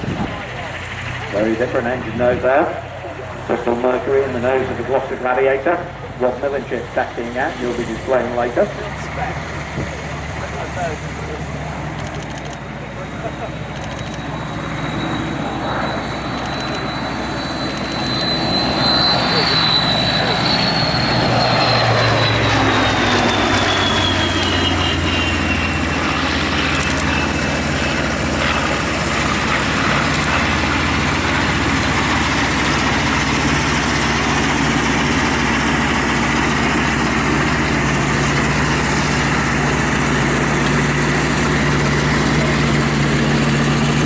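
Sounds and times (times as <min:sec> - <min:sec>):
propeller aircraft engine drone: 0:00.0 - 0:44.0.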